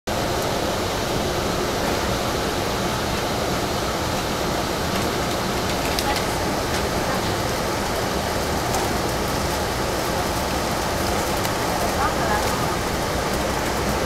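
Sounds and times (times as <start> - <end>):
train running noise inside coach: 0.1 - 14.0.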